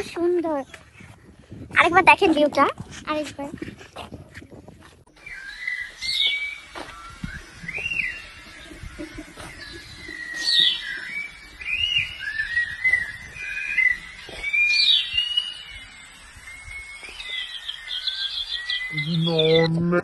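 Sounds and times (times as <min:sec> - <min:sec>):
wavering bird whistles: 0:05.2 - 0:08.5, 0:09.4 - 0:19.7.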